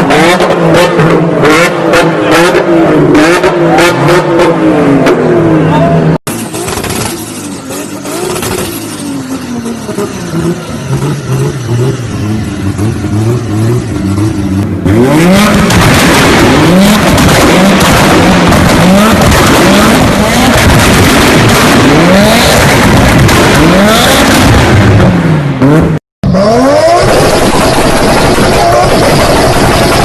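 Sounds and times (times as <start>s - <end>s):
car engine revving: 0.0s - 30.0s
exhaust popping and crackling: 14.1s - 25.4s, 26.7s - 30.0s.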